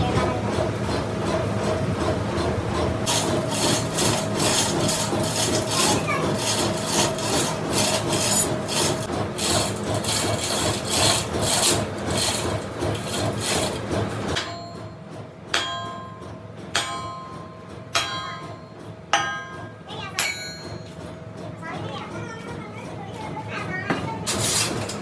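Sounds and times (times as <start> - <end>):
metal rasping and scraping: 3.0 - 14.8, 24.2 - 25.0.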